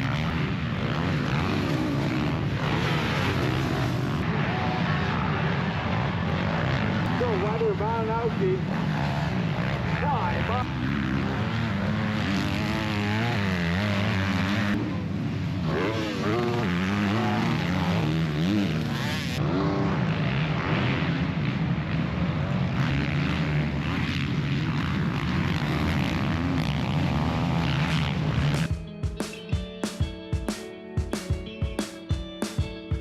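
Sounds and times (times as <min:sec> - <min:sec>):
dirt bike engines revving: 0:00.0 - 0:30.6.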